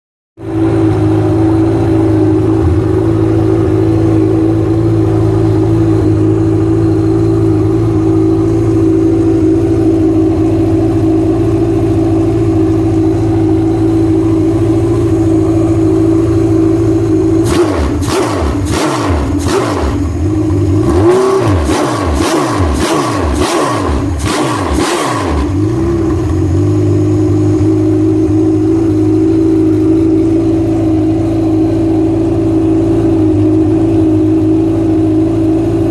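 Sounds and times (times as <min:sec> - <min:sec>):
racing engine idling and revving: 0:00.4 - 0:35.9.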